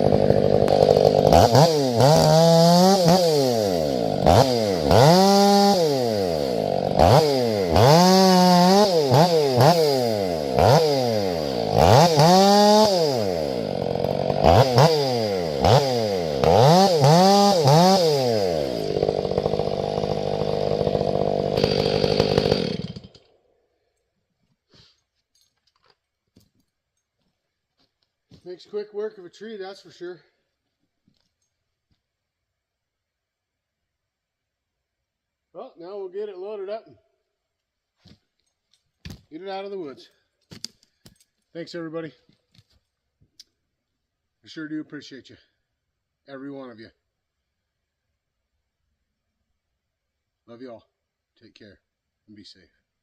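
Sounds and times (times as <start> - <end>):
chainsaw cutting wood: 0.0 - 23.4.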